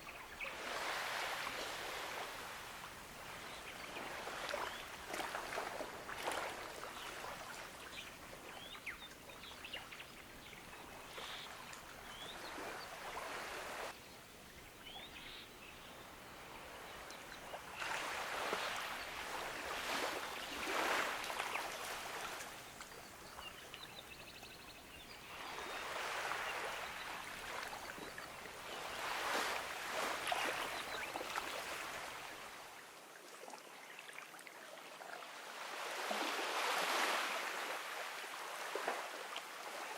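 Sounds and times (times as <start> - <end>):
ocean waves washing onto beach: 0.0 - 8.5, 16.3 - 22.8, 25.3 - 32.8
faint bird chirps: 7.8 - 13.0.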